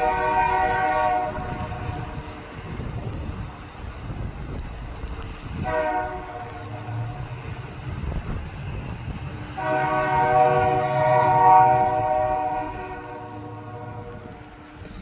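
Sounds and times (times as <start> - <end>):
locomotive air horn blast: 0.0 - 2.2, 5.6 - 6.7, 9.6 - 14.4
low rumble of train: 0.0 - 15.0.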